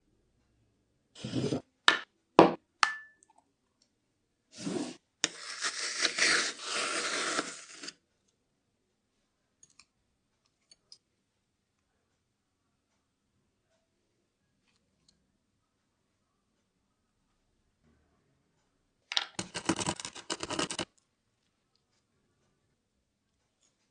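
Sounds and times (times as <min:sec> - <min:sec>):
rough scraping: 0:01.2 - 0:01.6, 0:04.6 - 0:07.9, 0:19.4 - 0:20.9.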